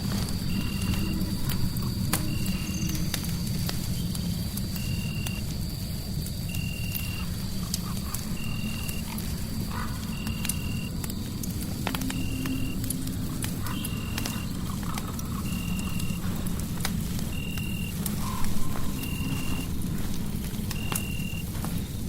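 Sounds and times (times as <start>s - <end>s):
crackling fire with pops: 0.0s - 22.0s.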